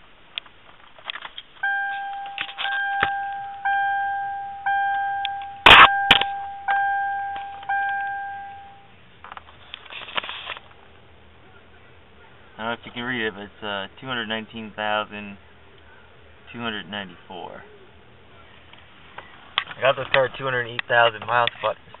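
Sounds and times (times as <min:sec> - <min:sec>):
dashboard warning chime: 0:01.6 - 0:09.0.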